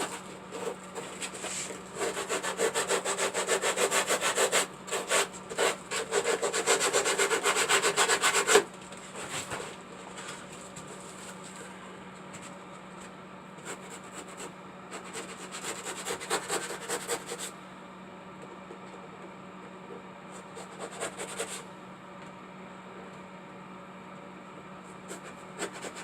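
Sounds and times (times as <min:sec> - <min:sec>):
sandpaper rubbing strokes: 0:00.0 - 0:08.6
steady low hum: 0:00.0 - 0:15.8.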